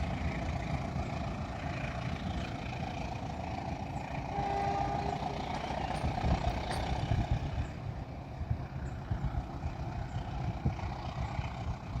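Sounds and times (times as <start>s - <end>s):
locomotive engine rumbling: 0.0s - 12.0s.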